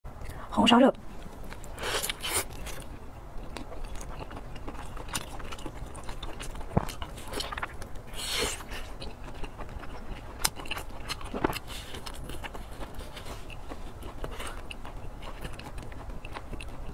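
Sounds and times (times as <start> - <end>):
chewing food: 1.2 - 16.9.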